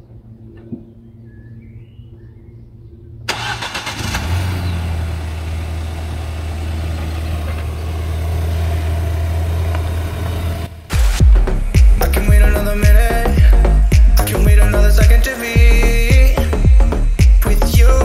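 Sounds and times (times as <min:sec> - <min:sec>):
car engine starting: 0:03.2 - 0:15.0
car engine idling: 0:03.3 - 0:15.1.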